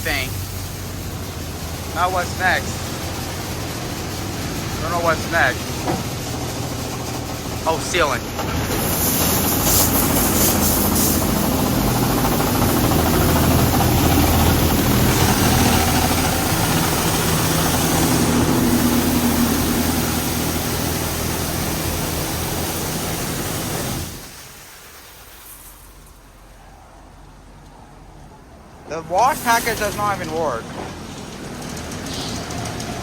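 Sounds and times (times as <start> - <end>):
pump humming: 0.0 - 24.8
water spray rushing: 0.0 - 26.6, 28.9 - 30.7.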